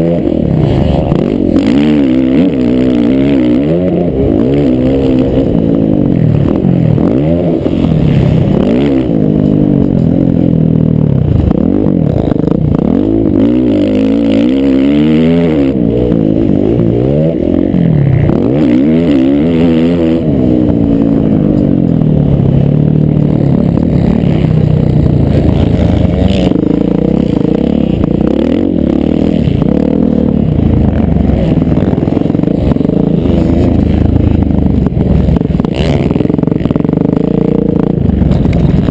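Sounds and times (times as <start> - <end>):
dirt bike engines revving: 0.0 - 38.9.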